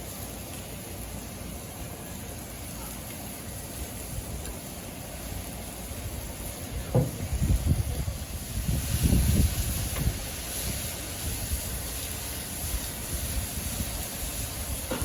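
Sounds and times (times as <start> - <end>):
wind buffeting microphone: 6.1 - 12.0.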